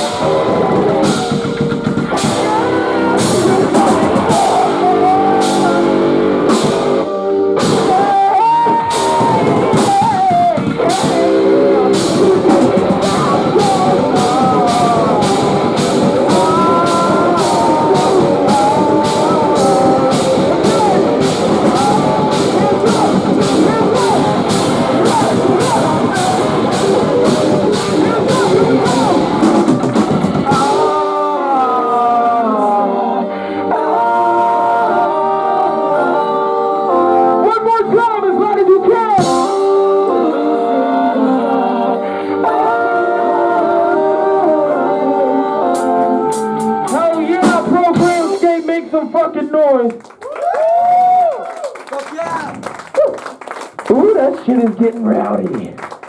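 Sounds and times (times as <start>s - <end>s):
drum beat: 0.0s - 7.0s, 7.6s - 31.2s, 45.8s - 49.3s
distorted guitars: 0.0s - 36.4s, 37.3s - 40.4s, 45.7s - 49.7s
vocals: 0.0s - 56.0s.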